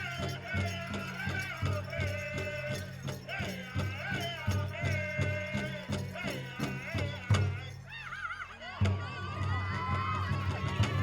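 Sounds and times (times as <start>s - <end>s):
steady drumbeat: 0.0s - 7.8s, 8.8s - 11.0s
small bells jingling: 0.0s - 8.5s.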